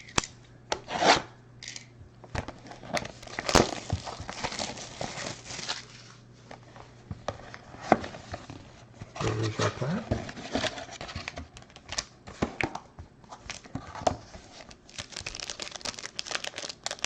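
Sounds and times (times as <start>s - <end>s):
plastic wrapping crinkling and tearing: 2.6s - 6.2s, 14.5s - 17.0s.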